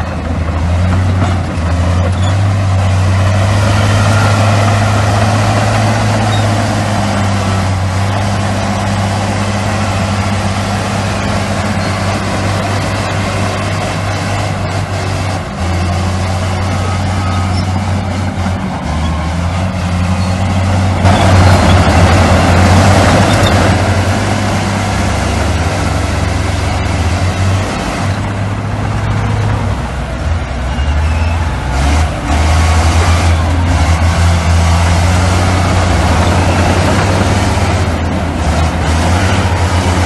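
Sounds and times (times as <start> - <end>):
diesel machinery engine hum: 0.0 - 40.0
loud rushing noise: 18.0 - 40.0.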